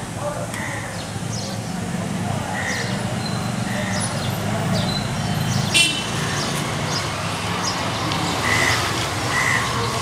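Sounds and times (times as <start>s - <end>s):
low street rumble: 0.0s - 10.0s
birds calling: 0.5s - 10.0s.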